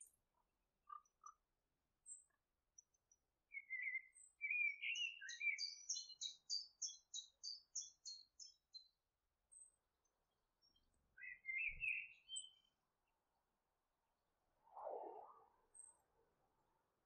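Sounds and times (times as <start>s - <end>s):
bird singing faintly: 3.5s - 8.8s, 10.6s - 12.7s.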